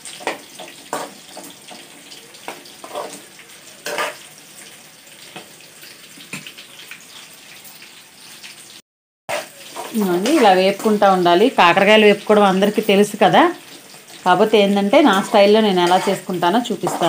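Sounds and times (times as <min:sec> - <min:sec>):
food deep-frying in hot oil: 0:00.0 - 0:17.0.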